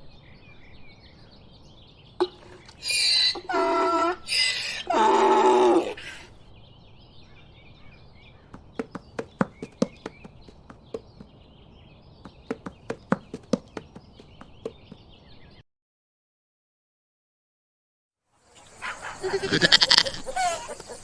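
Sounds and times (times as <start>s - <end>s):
faint birdsong: 0.0s - 15.6s, 18.3s - 21.0s
donkey braying: 2.2s - 6.3s, 18.5s - 21.0s.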